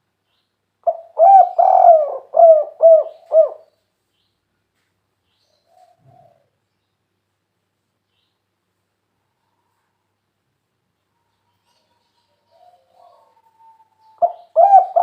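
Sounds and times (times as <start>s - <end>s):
dove cooing: 0.8s - 3.7s, 5.6s - 6.5s, 12.5s - 15.0s.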